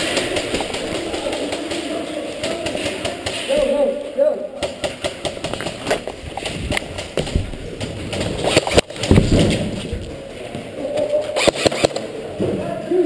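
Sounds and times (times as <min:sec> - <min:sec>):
running footsteps: 0:00.0 - 0:03.7, 0:04.7 - 0:11.3.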